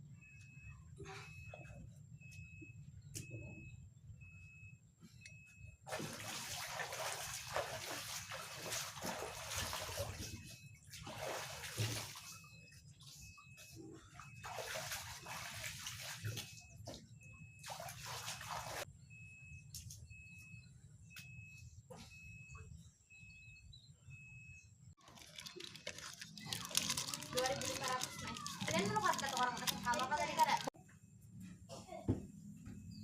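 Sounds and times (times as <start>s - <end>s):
water pouring and splashing: 5.9s - 13.1s, 14.0s - 17.0s, 17.6s - 18.9s, 25.0s - 30.8s.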